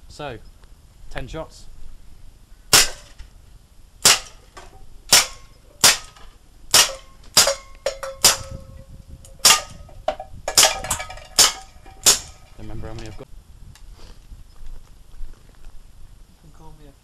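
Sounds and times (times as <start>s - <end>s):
airgun shots cracking: 2.7s - 3.2s, 4.0s - 4.5s, 5.1s - 8.7s, 9.4s - 9.9s, 10.5s - 12.7s.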